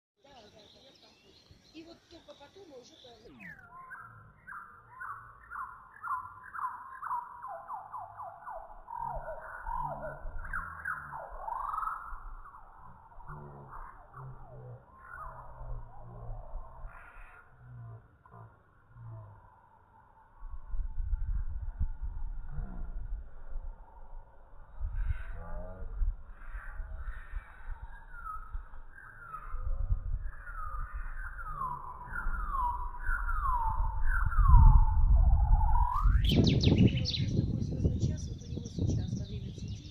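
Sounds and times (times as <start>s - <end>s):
bird whistling downward notes: 3.4s - 13.2s, 27.1s - 37.4s
low droning sound: 8.6s - 36.7s
low rumble: 8.8s - 39.9s.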